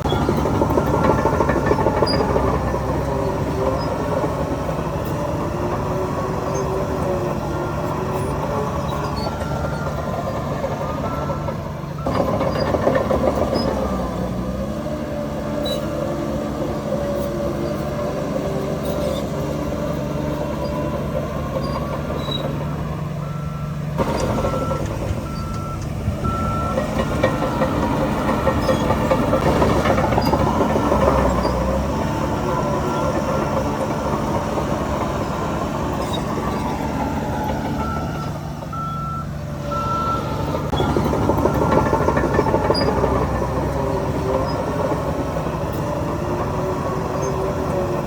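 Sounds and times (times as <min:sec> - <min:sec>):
heavy machinery diesel engines: 0:00.0 - 0:48.0
reversing alarm beeps: 0:08.2 - 0:14.0, 0:20.4 - 0:33.7, 0:35.3 - 0:44.6.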